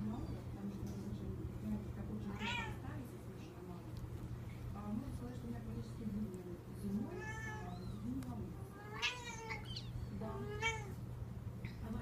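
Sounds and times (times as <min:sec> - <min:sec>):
kittens meowing: 0:07.1 - 0:08.1, 0:08.7 - 0:11.0.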